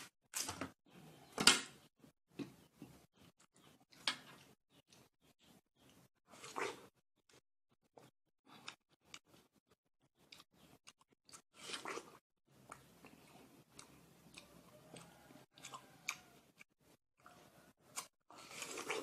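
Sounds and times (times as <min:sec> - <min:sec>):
chewing watermelon: 0:10.2 - 0:19.0.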